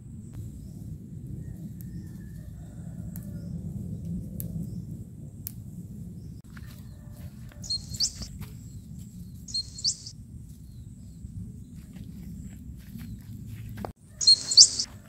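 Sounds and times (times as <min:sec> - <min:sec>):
steady low rumble: 0:03.1 - 0:15.0
bird chirping: 0:07.6 - 0:10.1, 0:14.1 - 0:14.9.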